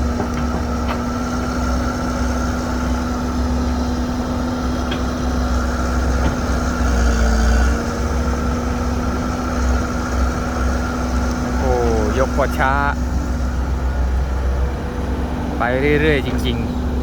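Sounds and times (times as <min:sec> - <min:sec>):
excavator diesel engine rumbling: 0:00.0 - 0:17.0.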